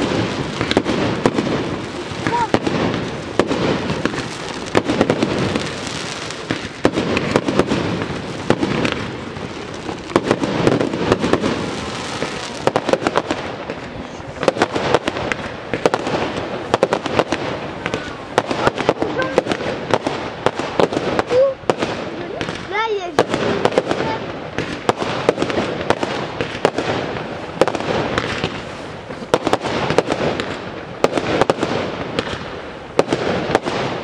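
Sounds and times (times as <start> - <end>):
fireworks bangs and cracks: 0.0 - 34.0
continuous rushing noise: 1.8 - 2.6.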